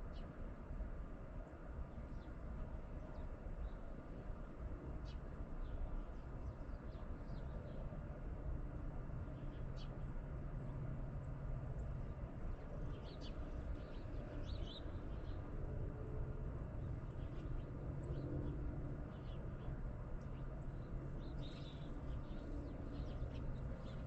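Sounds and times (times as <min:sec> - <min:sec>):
small birds chirping: 0:19.1 - 0:24.0.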